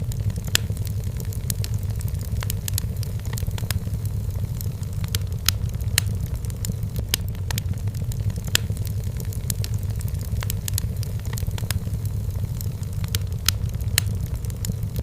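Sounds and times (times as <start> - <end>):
firewood crackling and popping: 0.0 - 15.0
flames rumbling: 0.0 - 15.0.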